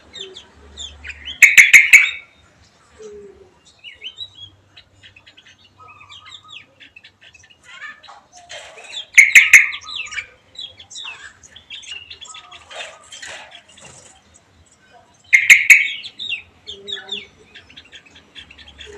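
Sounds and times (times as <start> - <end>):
caged songbirds chirping: 0.0 - 18.9.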